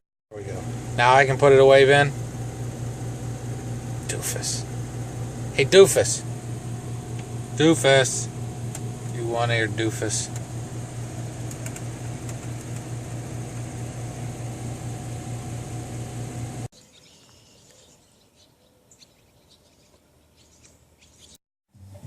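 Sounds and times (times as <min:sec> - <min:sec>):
electric motor hum with fan: 0:00.3 - 0:16.7
faint chirps and clicks: 0:17.0 - 0:18.1.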